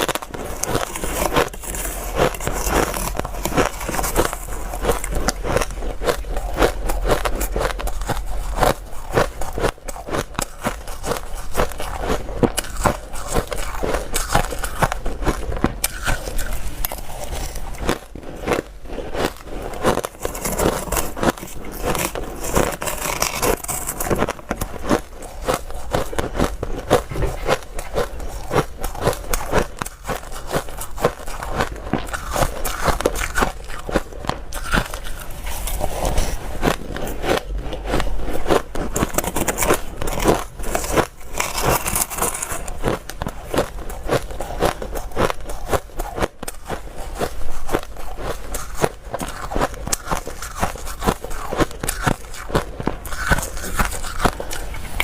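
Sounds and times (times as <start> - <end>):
ice being chewed: 0.0 - 55.0.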